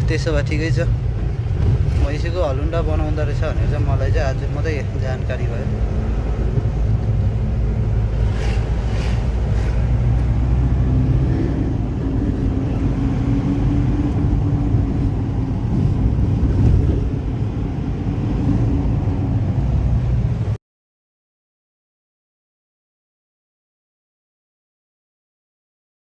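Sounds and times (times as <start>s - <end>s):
vehicle engine rumble: 0.0s - 20.6s.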